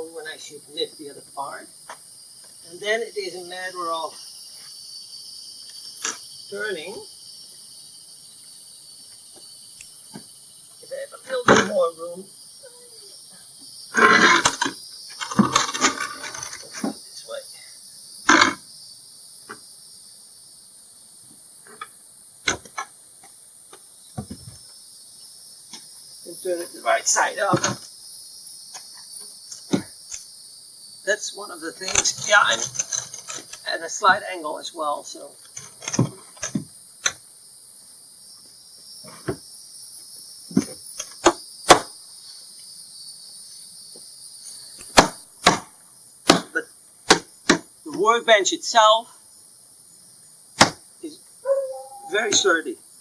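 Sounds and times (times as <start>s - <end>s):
crickets chirping: 0.0s - 53.0s
wooden knocks of workbench: 24.2s - 24.6s
wooden knocks and clatters: 24.2s - 24.7s, 35.6s - 36.7s.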